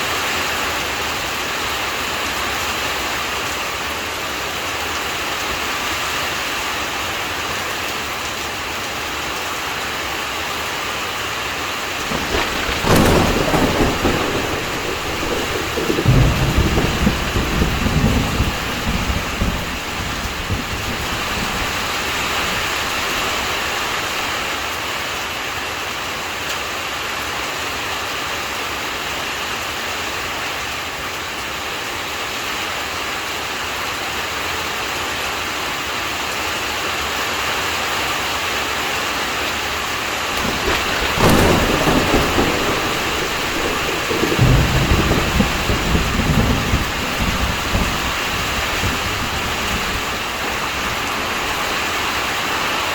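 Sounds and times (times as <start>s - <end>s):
heavy rain: 0.0s - 36.9s, 38.6s - 52.9s
low rolling thunder: 12.0s - 24.6s, 40.4s - 52.9s
sharp thunder crack: 12.0s - 24.6s, 40.4s - 52.9s.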